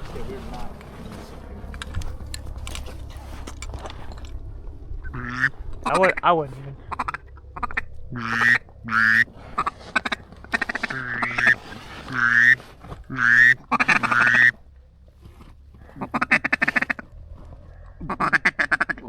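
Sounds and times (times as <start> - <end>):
duck quacking: 5.0 - 14.6, 15.8 - 17.0, 17.8 - 19.0.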